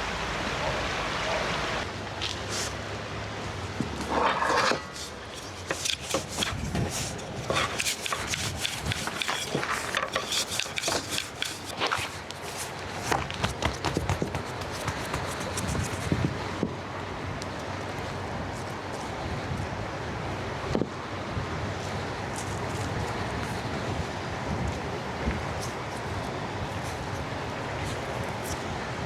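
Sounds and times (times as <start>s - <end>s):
rustling tapping and scraping: 3.8s - 16.3s, 21.8s - 24.8s, 25.5s - 28.7s.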